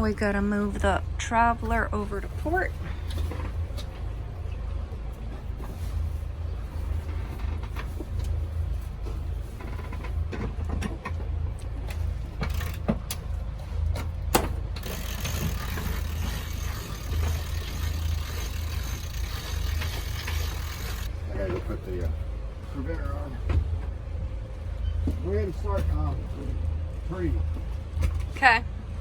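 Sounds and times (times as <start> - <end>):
steady low rumble: 0.0 - 29.0
deck hardware clicking and knocking: 9.0 - 22.2.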